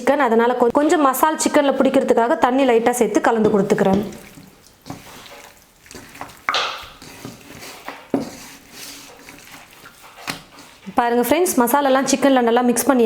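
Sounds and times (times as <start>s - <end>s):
wet squelches of mixing chicken: 0.7s - 13.0s
hissy water splash: 4.0s - 7.2s.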